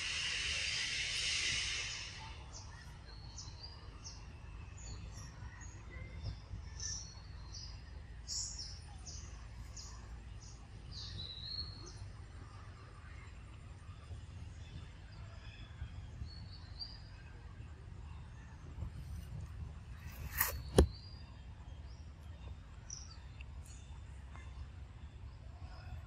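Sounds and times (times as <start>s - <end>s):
loud hiss: 0.0s - 2.7s
low outdoor rumble: 0.0s - 26.0s.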